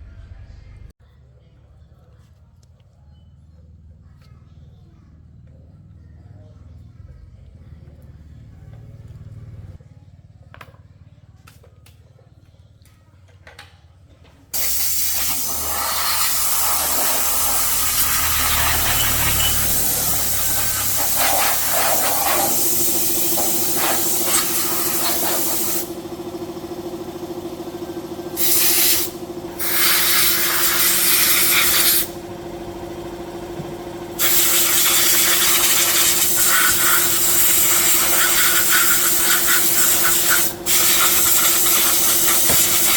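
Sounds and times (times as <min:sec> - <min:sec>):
pressurised spray hissing: 0:14.6 - 0:26.0, 0:28.4 - 0:32.2, 0:34.2 - 0:42.9
steady hum: 0:15.1 - 0:42.9.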